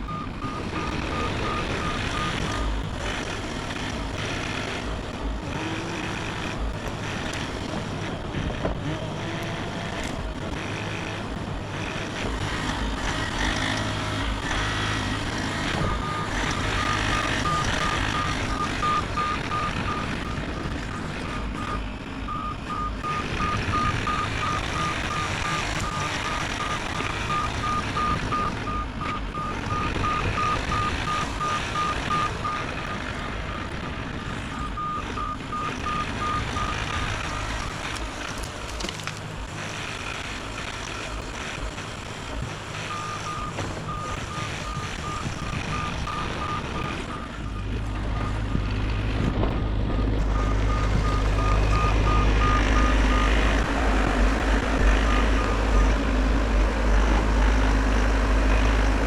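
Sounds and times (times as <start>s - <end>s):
travel alarm beeping: 0.0s - 2.8s, 15.7s - 33.6s, 42.9s - 48.4s
mini excavator engine running: 0.0s - 59.0s.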